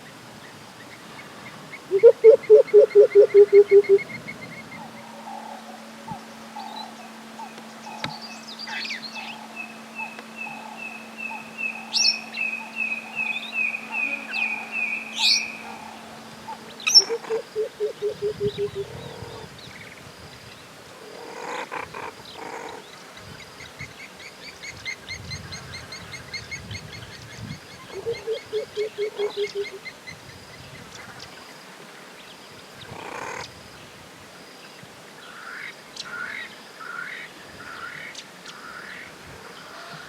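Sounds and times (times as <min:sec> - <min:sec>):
low pulsed animal call: 0:01.9 - 0:04.1, 0:04.8 - 0:19.4.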